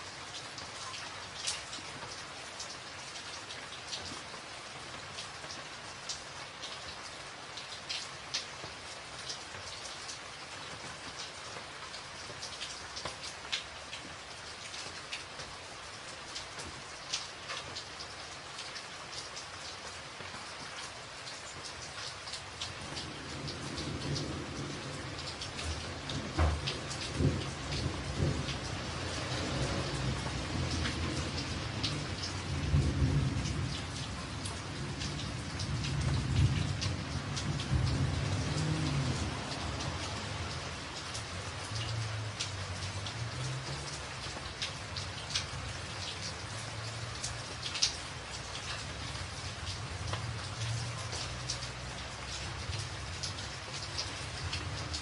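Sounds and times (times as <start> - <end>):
rain on a tin roof: 0.0 - 55.0
low roll of thunder: 22.9 - 40.2.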